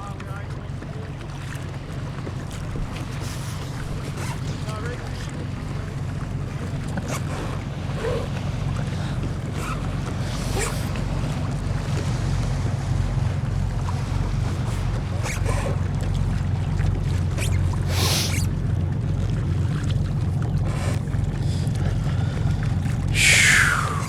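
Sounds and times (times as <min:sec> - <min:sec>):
water splashing against hull: 0:00.0 - 0:24.0
wind rumbling on microphone: 0:05.5 - 0:24.0.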